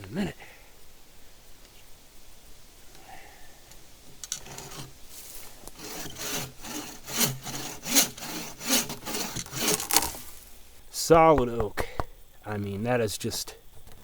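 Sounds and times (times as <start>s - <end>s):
saw cutting through log: 4.5s - 10.7s.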